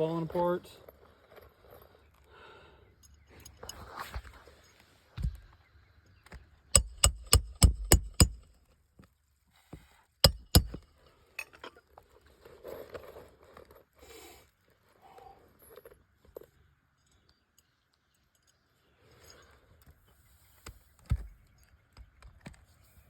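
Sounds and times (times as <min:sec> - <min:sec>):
hammer striking roofing nails: 0:06.8 - 0:08.5, 0:10.2 - 0:10.8.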